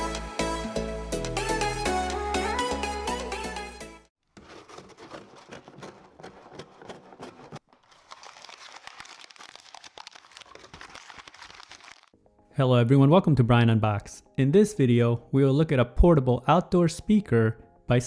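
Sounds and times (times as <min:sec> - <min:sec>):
packaging crinkling and rustling: 0:04.4 - 0:12.2
small clicks and crackles: 0:08.0 - 0:12.2.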